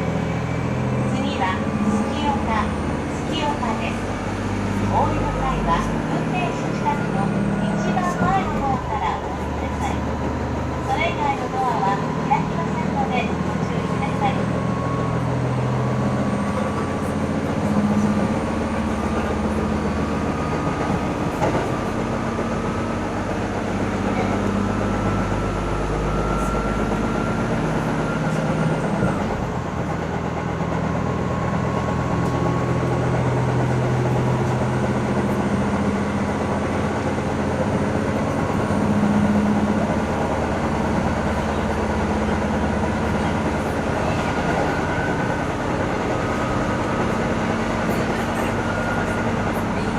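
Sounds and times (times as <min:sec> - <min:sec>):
diesel engine droning: 0:00.0 - 0:49.9
train wheels on rail: 0:00.0 - 0:49.9.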